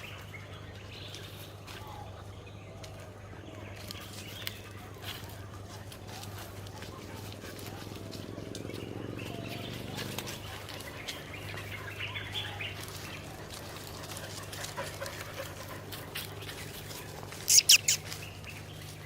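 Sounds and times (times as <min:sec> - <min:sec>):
sharp high-pitched chirps: 0:17.5 - 0:18.2.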